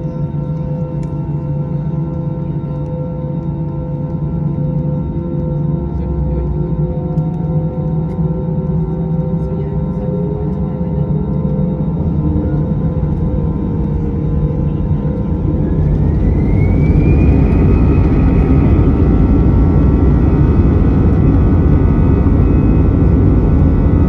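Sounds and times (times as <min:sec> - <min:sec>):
jet engines spooling up: 0:11.5 - 0:24.0.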